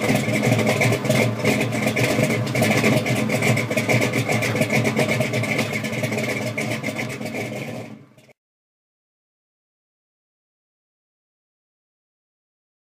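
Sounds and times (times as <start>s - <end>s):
car engine running: 0.0s - 8.4s.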